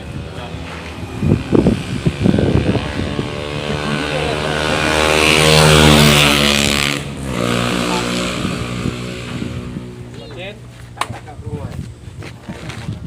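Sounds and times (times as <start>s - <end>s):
vehicle engine passing: 0.0s - 11.0s.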